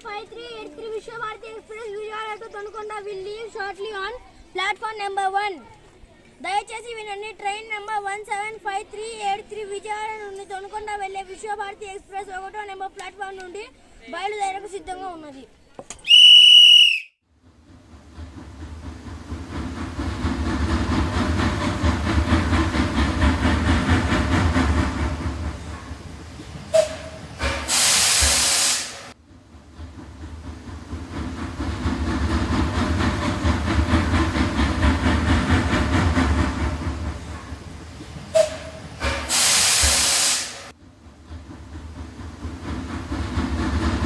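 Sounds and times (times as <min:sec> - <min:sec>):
high whistle blast: 0:16.0 - 0:17.2
train rumbling: 0:16.1 - 0:44.0
steam-like hiss: 0:18.4 - 0:29.2, 0:30.6 - 0:40.8.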